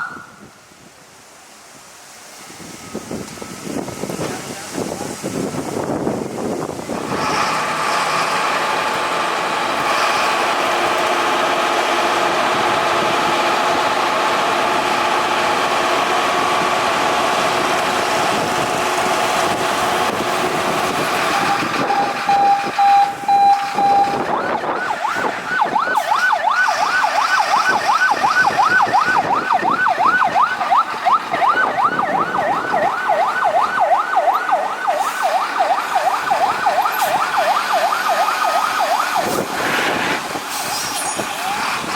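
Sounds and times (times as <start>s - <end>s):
short steady beep: 21.4s - 24.2s
fast yelping siren: 21.4s - 39.5s
wavering siren tone: 21.4s - 39.5s.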